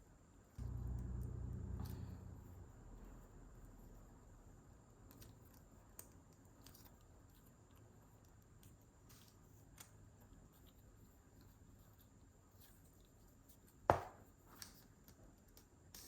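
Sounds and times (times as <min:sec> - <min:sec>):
low steady hum: 0:00.6 - 0:05.6.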